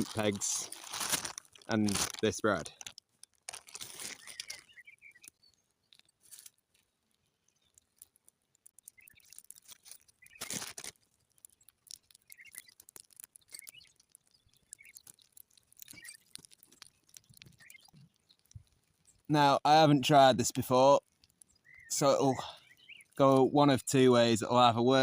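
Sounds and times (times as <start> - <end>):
soft clicks and crackles: 0.0 - 19.3, 20.4 - 24.0
faint bird chirps: 4.1 - 6.2, 8.8 - 10.6, 12.0 - 19.3, 21.4 - 23.2.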